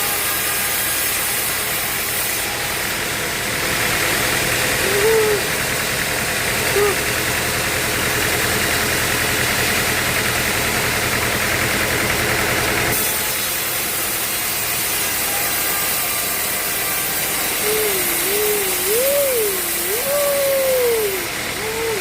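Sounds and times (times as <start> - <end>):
sawmill machinery running: 0.0 - 22.0
wavering tone: 17.6 - 22.0.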